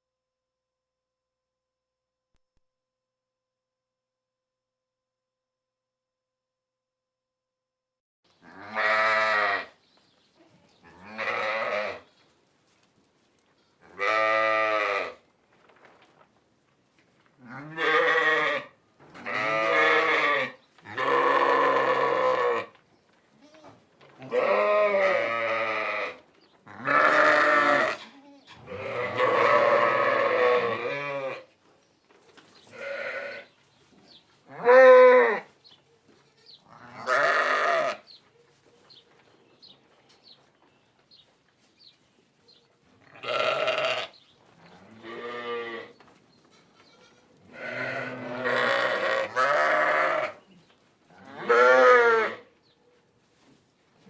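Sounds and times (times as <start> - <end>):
sheep bleating: 8.4 - 9.7, 10.8 - 12.0, 13.6 - 15.2, 17.4 - 22.7, 23.4 - 31.4, 32.8 - 33.5, 34.5 - 35.5, 36.2 - 38.0, 43.1 - 46.0, 46.8 - 50.4, 51.2 - 52.4.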